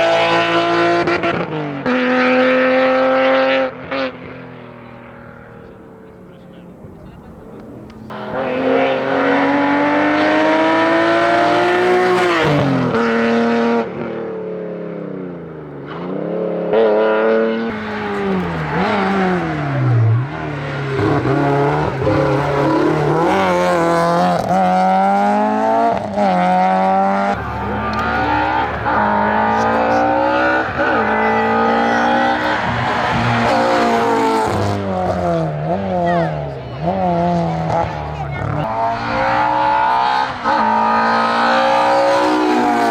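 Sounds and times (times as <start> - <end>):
race car engine revving: 0.0 - 14.3, 15.1 - 42.9.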